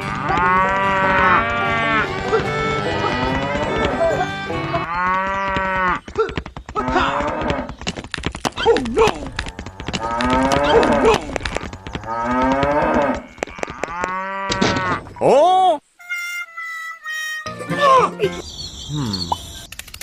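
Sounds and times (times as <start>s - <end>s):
cow mooing: 0.0s - 6.0s, 9.4s - 11.4s, 12.0s - 15.0s.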